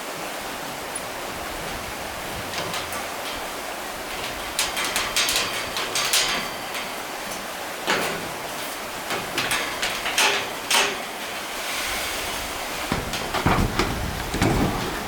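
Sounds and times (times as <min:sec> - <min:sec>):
flowing water rushing: 0:00.0 - 0:15.0
knocks and scrapes: 0:07.9 - 0:15.0.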